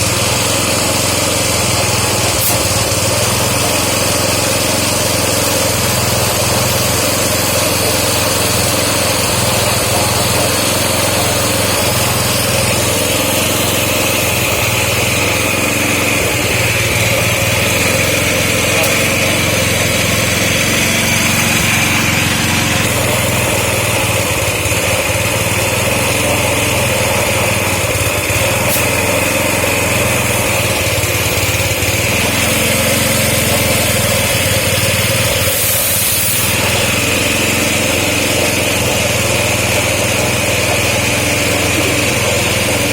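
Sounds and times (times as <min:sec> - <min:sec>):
small engine running: 0:00.0 - 0:42.9
high whine: 0:01.3 - 0:42.9.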